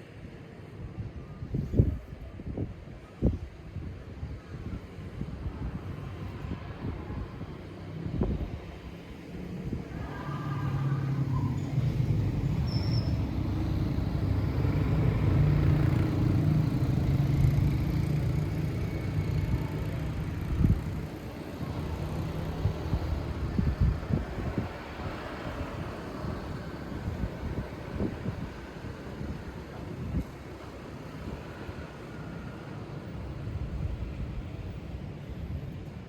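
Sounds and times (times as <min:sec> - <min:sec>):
wind noise: 0:00.8 - 0:36.0
vehicle engine hum: 0:06.2 - 0:35.0.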